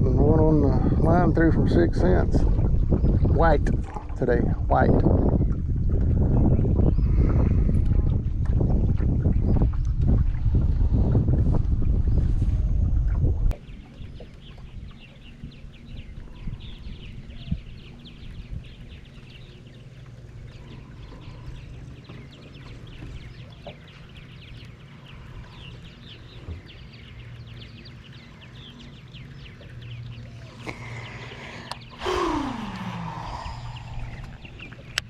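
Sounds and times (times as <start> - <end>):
birds chirping: 13.5 - 35.0.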